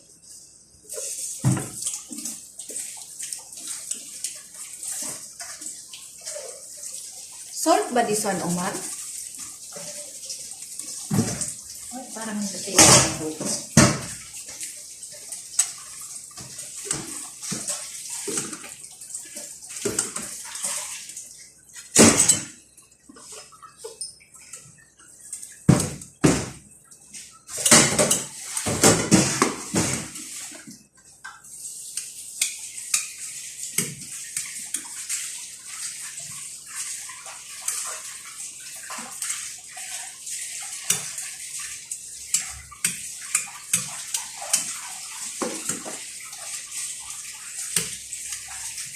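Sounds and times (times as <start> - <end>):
running water hiss: 0.0 - 22.5
pots and dishes clinking: 22.0 - 22.6.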